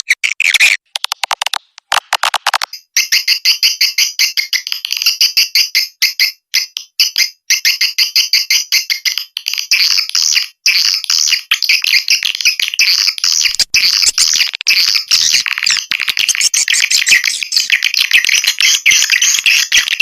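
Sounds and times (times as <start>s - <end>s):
swiftlets twittering: 13.3s - 20.0s.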